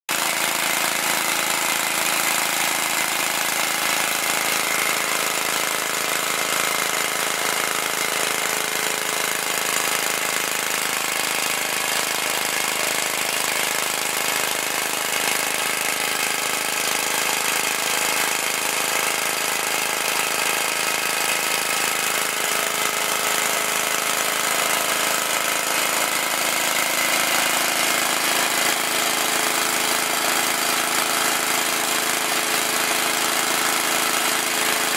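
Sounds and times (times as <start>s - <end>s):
small engine running steadily: 0.1s - 34.9s.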